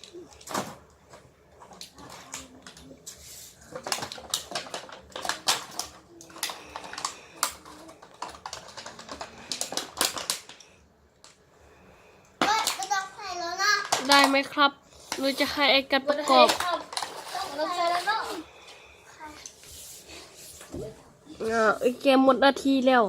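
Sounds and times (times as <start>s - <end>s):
plastic toy parts clicking: 13.8s - 14.4s.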